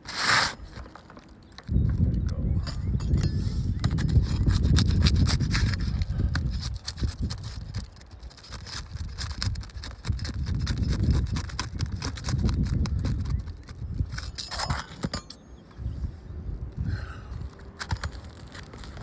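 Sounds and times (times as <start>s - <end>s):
tool scraping under shingle: 0.0s - 16.1s, 16.8s - 19.0s.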